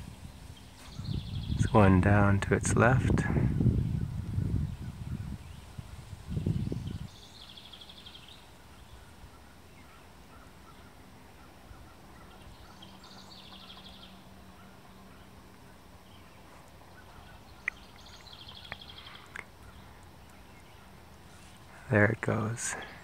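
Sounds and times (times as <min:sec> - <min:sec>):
faint outdoor background noise: 0:00.0 - 0:23.0.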